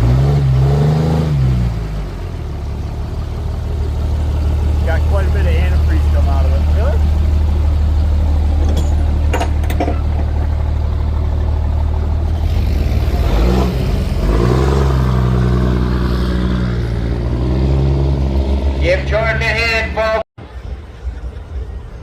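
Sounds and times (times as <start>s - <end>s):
diesel engine revving: 0.0s - 20.2s.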